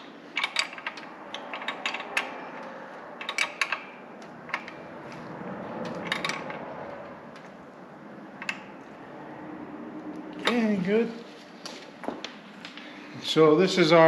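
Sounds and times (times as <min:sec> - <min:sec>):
metal parts and tools clinking: 0:00.0 - 0:07.5.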